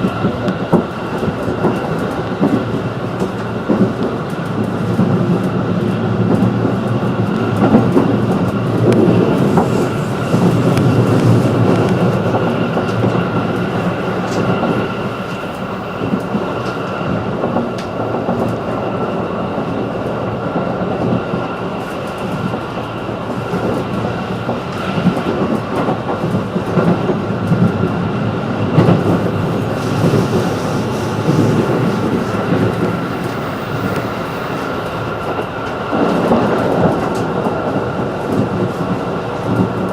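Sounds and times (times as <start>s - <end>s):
train wheels rumbling on rail: 0.0s - 39.9s
high whine: 28.7s - 35.6s.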